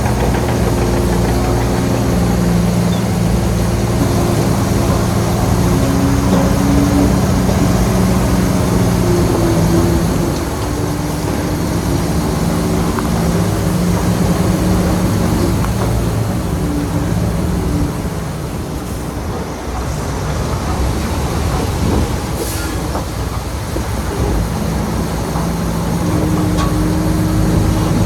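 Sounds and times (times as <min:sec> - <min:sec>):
heavy diesel engine under load: 0:00.0 - 0:28.0.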